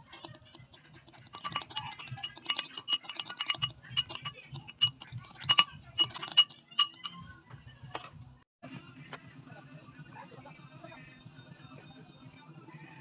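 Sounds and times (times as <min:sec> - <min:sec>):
metal utensil clinking against bowl: 0:00.0 - 0:07.3.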